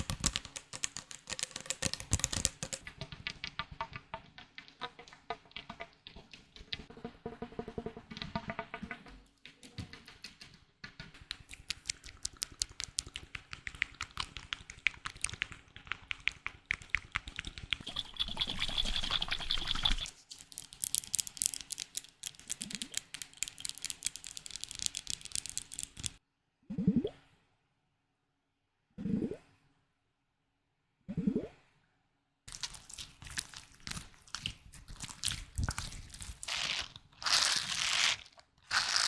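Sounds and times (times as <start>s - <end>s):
tapping on small objects: 0.0s - 6.9s, 8.2s - 26.2s, 32.5s - 39.0s
rustling: 32.5s - 39.0s.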